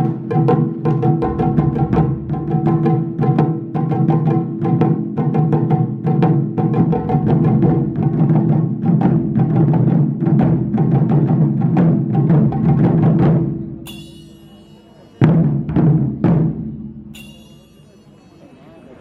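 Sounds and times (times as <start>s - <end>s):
heavy drum strikes: 0.0s - 17.8s
drums playing fast rhythm: 0.0s - 18.3s
ringing metallic note: 13.8s - 15.2s, 17.0s - 19.0s.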